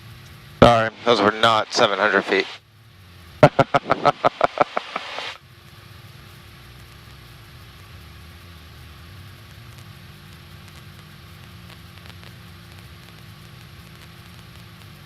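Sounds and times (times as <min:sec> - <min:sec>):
even hiss: 0:00.6 - 0:02.6, 0:03.4 - 0:05.4.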